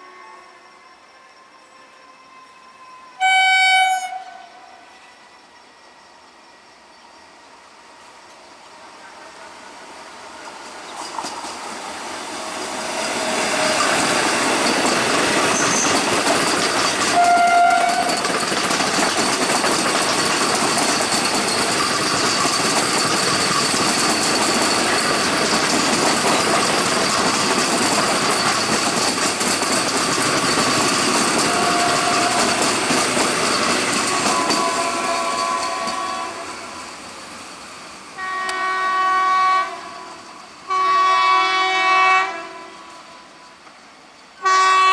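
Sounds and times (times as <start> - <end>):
train horn blast: 0.0 - 5.1, 17.1 - 18.2, 31.4 - 32.6, 34.1 - 36.8, 38.2 - 43.6, 44.4 - 44.9
train passing: 0.0 - 44.9
wheels clattering on rail: 10.4 - 36.4.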